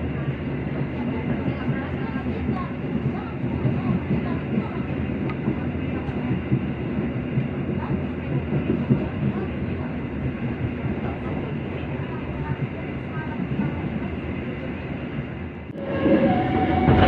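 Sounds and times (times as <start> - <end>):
train rumble from inside carriage: 0.0 - 17.0.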